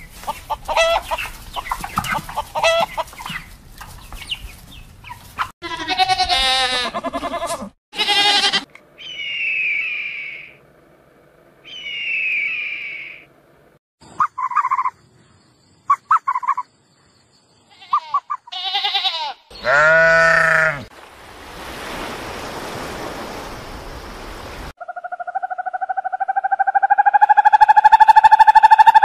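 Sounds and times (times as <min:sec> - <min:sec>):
loud bleat-like call: 0:05.6 - 0:08.7, 0:17.7 - 0:20.9
short chirping calls: 0:09.0 - 0:10.6, 0:11.7 - 0:13.3, 0:14.0 - 0:18.5
owl buzzy call: 0:11.7 - 0:13.3.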